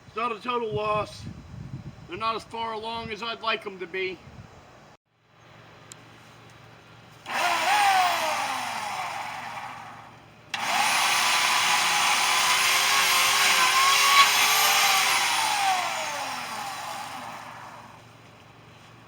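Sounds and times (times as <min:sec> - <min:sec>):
power tool motor running: 0:07.2 - 0:18.1.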